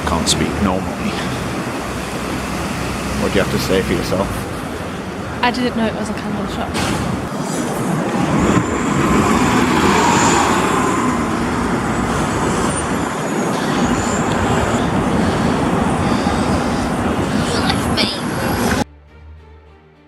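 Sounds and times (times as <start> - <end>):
city street traffic: 0.0 - 18.9
heavy vehicles passing: 0.0 - 18.9.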